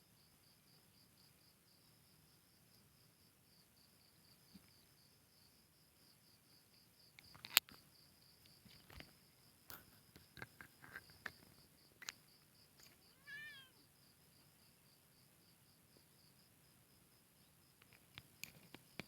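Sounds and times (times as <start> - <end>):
faint clicks and rustles: 7.2 - 13.1, 17.8 - 19.0
kitten meowing: 13.1 - 13.8.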